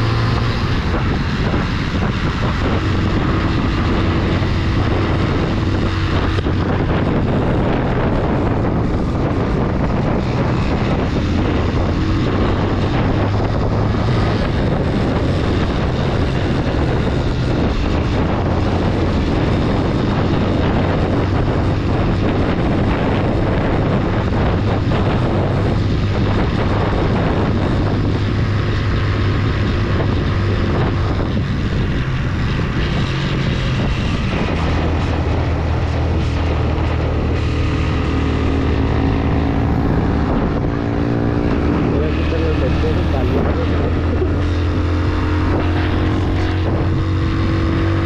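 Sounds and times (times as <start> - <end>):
motorcycle engine revving: 0.0 - 48.0
wind noise on microphone: 0.0 - 48.0.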